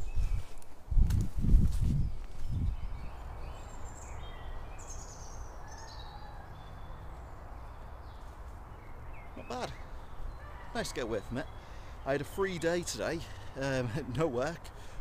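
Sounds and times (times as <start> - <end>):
wind on microphone: 0.0 - 3.2
birds chirping: 2.0 - 15.0.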